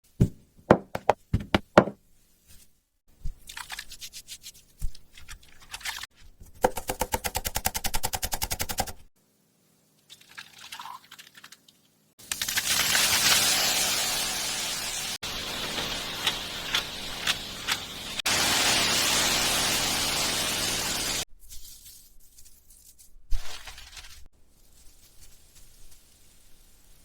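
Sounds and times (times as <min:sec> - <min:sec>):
knife chopping on cutting board: 0:00.2 - 0:02.0.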